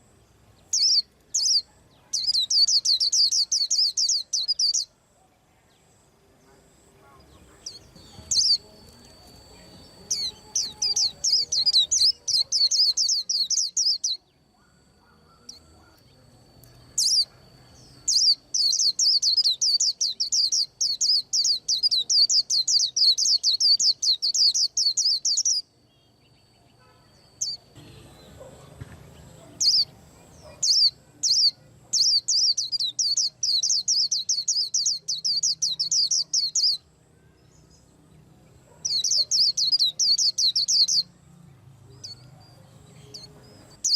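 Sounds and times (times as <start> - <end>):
thin steady high tone: 0.0 - 43.9
bird chirping rapidly: 0.6 - 4.9, 7.6 - 8.7, 9.4 - 16.0, 17.0 - 17.3, 17.9 - 25.7, 29.5 - 36.9, 38.7 - 41.1, 43.1 - 43.9.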